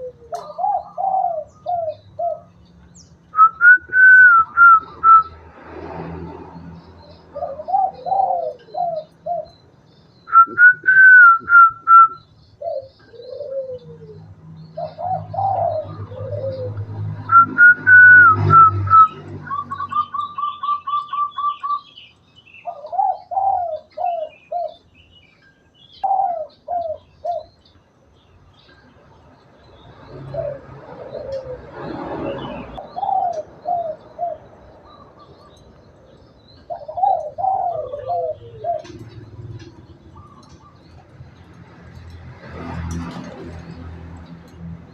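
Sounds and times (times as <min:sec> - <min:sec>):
dove cooing: 0:00.0 - 0:02.7, 0:03.4 - 0:05.3, 0:07.2 - 0:09.7, 0:10.3 - 0:22.0, 0:22.6 - 0:24.8, 0:26.0 - 0:27.6, 0:30.0 - 0:35.6, 0:36.5 - 0:41.5
high whistled bird phrases: 0:03.4 - 0:05.4, 0:10.2 - 0:12.3.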